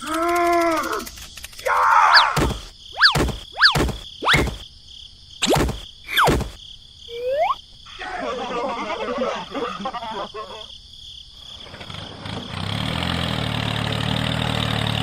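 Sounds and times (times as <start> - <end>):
sharp knocks: 2.4 - 4.6
whistling pitch sweep: 2.9 - 4.6, 7.1 - 7.6.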